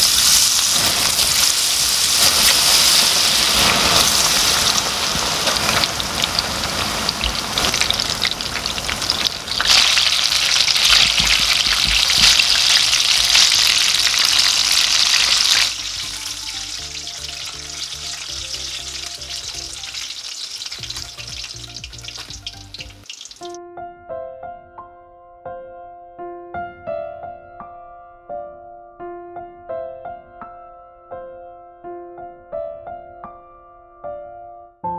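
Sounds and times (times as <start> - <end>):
food deep-frying in oil: 0.0 - 23.6
soft background music: 9.7 - 34.9.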